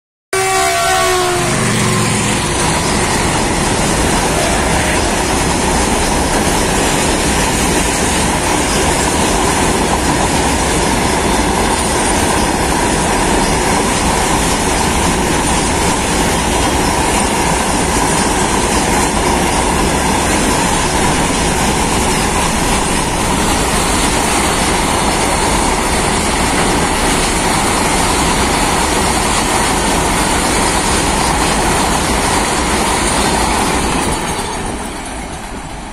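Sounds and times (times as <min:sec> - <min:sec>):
train horn: 0:00.3 - 0:02.6, 0:04.2 - 0:05.4
train wheels on rail: 0:00.3 - 0:35.9.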